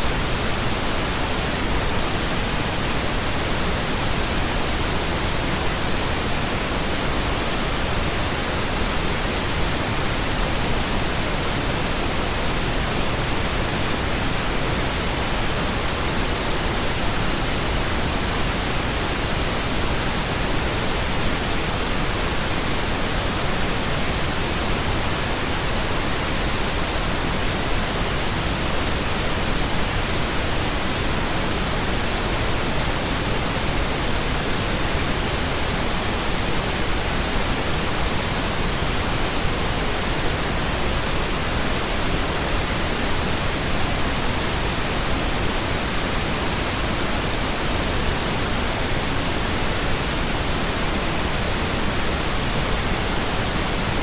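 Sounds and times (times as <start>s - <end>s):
pink noise hiss: 0.0s - 54.0s.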